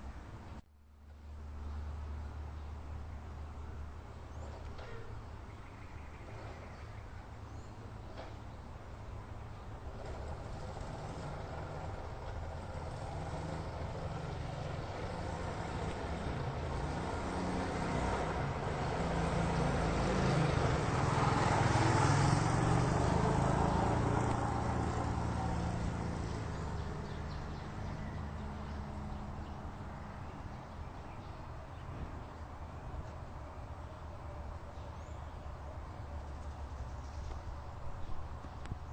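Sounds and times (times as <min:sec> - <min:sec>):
airplane engine overhead: 0:01.2 - 0:38.9.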